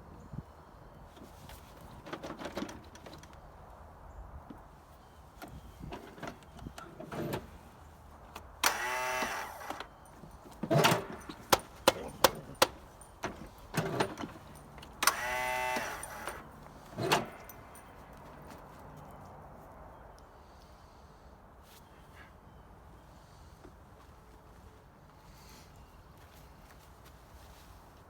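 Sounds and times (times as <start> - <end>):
recoil starter pull whirr: 8.3 - 10.0, 10.6 - 17.5.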